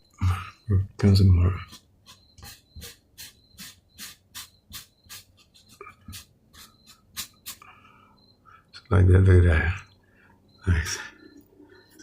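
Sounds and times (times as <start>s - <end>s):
eraser rubbing on paper: 1.7s - 7.6s.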